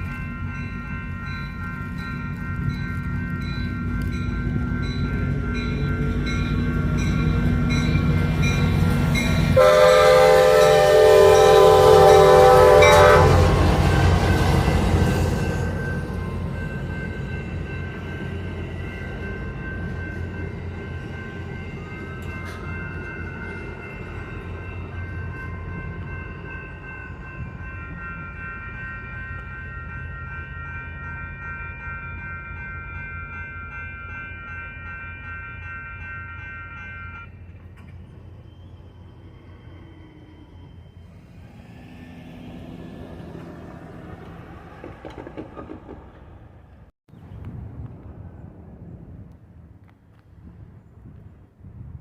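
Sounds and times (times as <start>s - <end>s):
crossing bell ringing: 0.0s - 39.8s
train rumbling: 0.0s - 52.0s
wheel clicks over rail joints: 44.2s - 46.8s.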